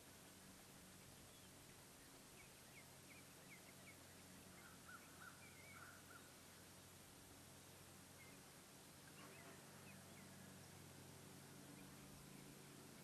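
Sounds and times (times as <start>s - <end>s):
steady low hiss: 0.0s - 13.0s
faint bird chirps: 1.0s - 6.6s, 8.1s - 10.9s, 11.5s - 13.0s.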